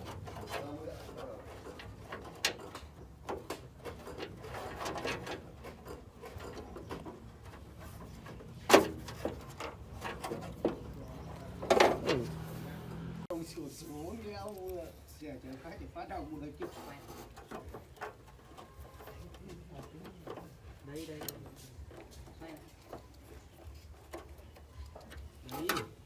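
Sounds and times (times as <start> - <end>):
hard objects clicking and knocking: 0.0 - 12.4, 15.6 - 26.0.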